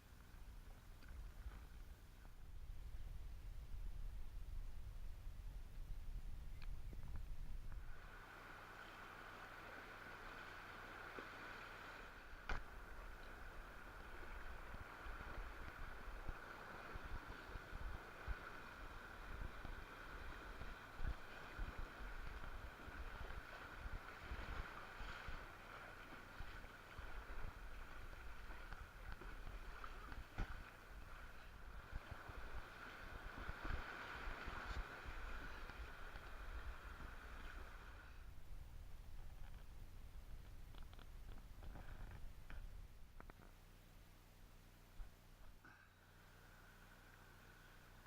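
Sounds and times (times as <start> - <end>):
wind buffeting microphone: 2.4 - 8.1
water rushing hiss: 7.8 - 38.4.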